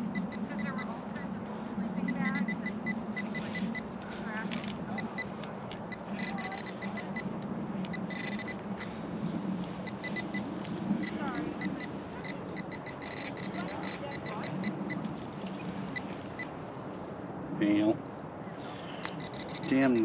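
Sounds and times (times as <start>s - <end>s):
metal detector beeping: 0.0s - 0.9s, 2.1s - 3.9s, 4.9s - 7.3s, 7.9s - 9.0s, 9.8s - 15.0s, 19.0s - 20.0s
steady low hum: 0.0s - 20.0s.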